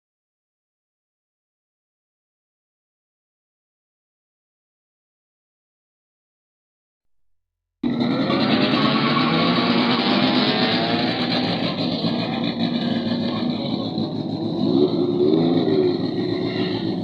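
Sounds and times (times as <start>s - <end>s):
race car engines revving: 7.8s - 17.0s.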